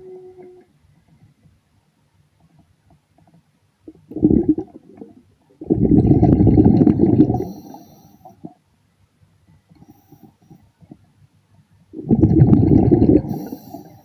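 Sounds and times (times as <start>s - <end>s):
underwater exhaled breath bubbling: 3.9s - 8.6s, 12.0s - 14.0s.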